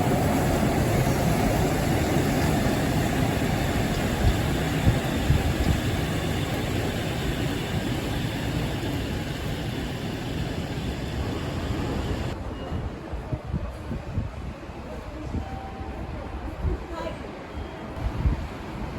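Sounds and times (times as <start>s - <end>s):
monorail train rushing past: 0.0s - 18.9s.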